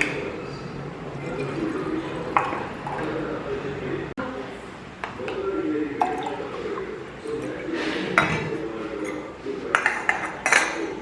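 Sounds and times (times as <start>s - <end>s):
kitchenware being handled: 6.1s - 11.0s.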